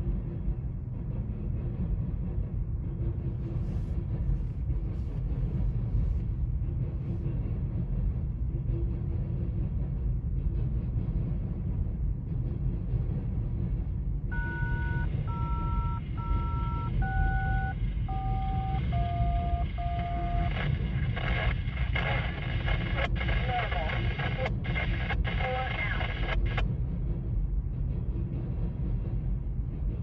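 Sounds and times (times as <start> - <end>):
touch-tone beeps: 14.3 - 20.5
radio hiss: 18.1 - 26.6.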